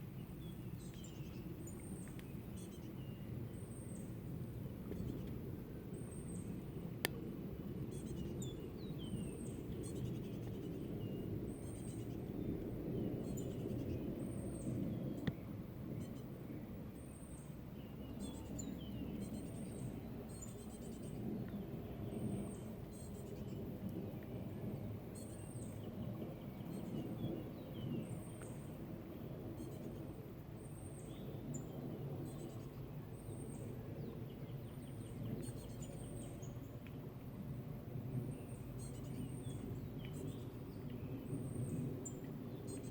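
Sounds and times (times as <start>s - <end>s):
steady low rush of noise: 0.0s - 42.9s.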